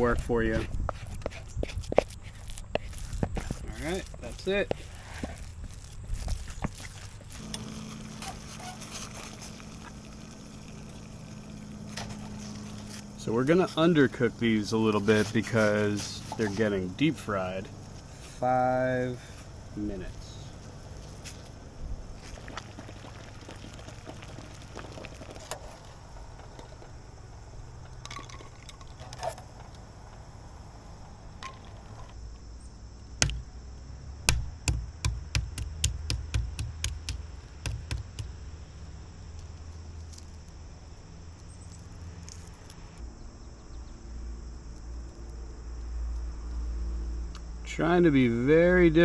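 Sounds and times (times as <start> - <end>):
water pouring and splashing: 6.7 - 12.9
knocks: 34.3 - 38.4.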